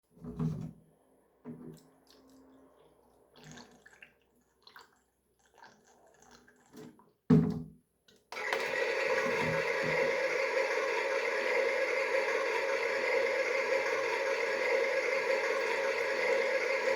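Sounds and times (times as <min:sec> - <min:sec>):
small motor running: 0:08.4 - 0:16.9.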